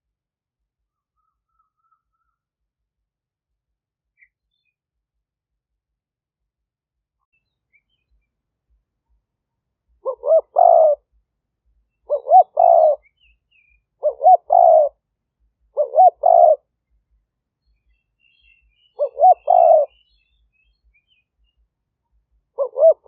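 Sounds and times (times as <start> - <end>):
dove cooing: 10.0 - 11.0, 12.1 - 13.1, 14.0 - 15.0, 15.7 - 16.7, 19.0 - 20.0, 22.6 - 23.0.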